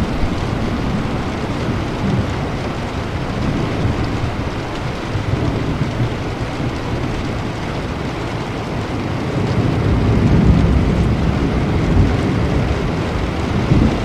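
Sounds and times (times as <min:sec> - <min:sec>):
steady rain falling: 0:00.0 - 0:14.0
thunder rumbling: 0:00.0 - 0:14.0.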